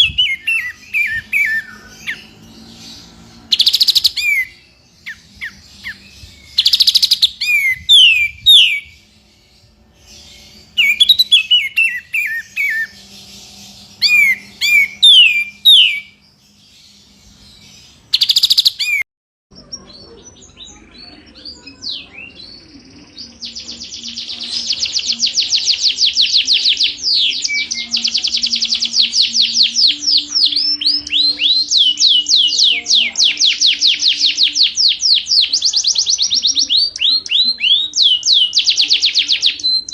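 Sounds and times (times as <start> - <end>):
fast bird trill: 0.0 - 9.2, 10.1 - 16.2, 17.0 - 19.0
songbird whistled phrases: 3.6 - 9.0, 10.8 - 13.0, 14.0 - 16.2, 23.4 - 39.9.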